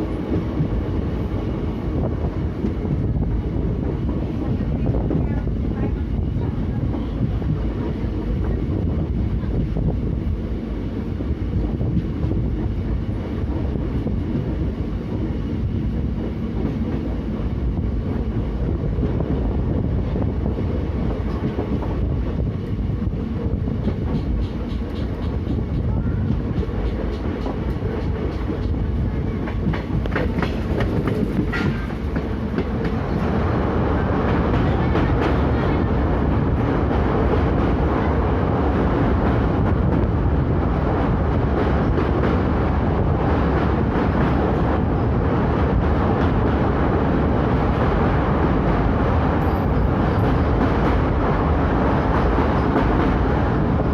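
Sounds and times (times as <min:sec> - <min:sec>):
train rumbling on rails: 0:00.0 - 0:53.9
wheels clicking over rail joints: 0:23.8 - 0:33.2.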